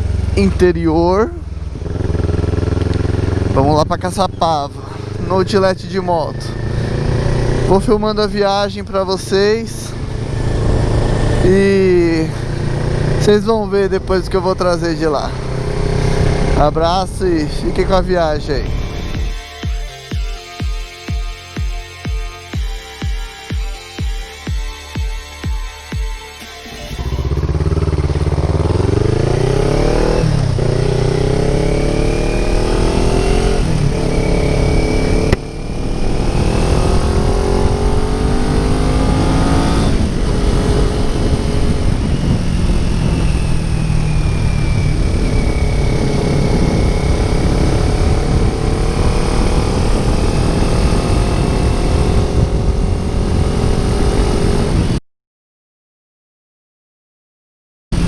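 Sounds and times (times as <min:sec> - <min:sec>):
motorcycle engine accelerating: 0:00.0 - 0:55.0
wind noise: 0:32.5 - 0:55.0.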